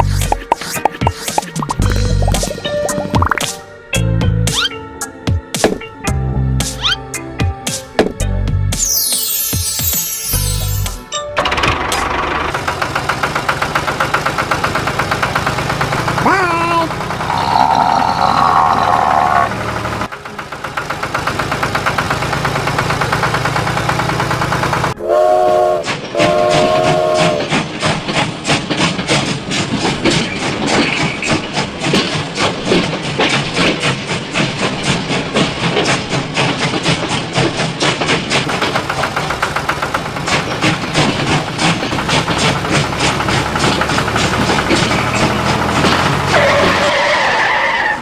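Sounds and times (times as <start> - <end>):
train rhythmic clatter: 11.1 - 17.9, 19.6 - 47.4
wheels clicking: 11.4 - 18.9, 19.5 - 25.0, 26.3 - 48.0
train whistle: 25.0 - 27.7.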